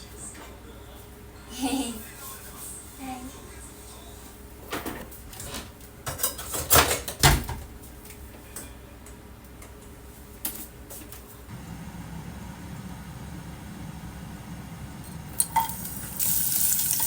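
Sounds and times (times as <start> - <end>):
dishes and utensils clinking: 4.8 - 7.2, 15.4 - 17.0.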